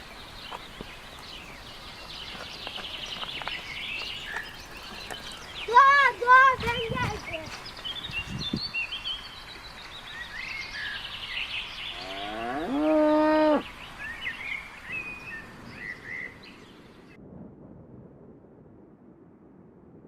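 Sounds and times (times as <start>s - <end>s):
small birds chirping: 0.0s - 17.2s
cow mooing: 11.9s - 13.6s.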